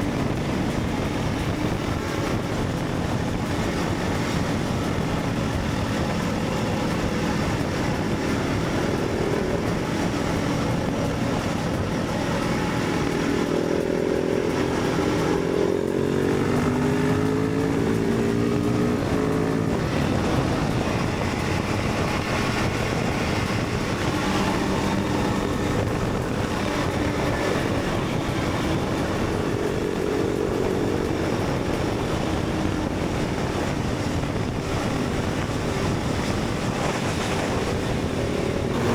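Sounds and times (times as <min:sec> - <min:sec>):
motorcycle engine: 0:00.0 - 0:38.9
wind noise: 0:00.0 - 0:38.9.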